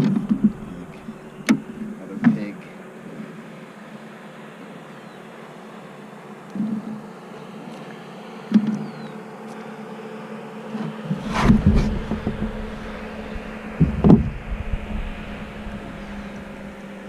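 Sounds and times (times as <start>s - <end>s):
steady low hum: 0.0s - 17.0s
knocks and thumps: 11.1s - 15.6s.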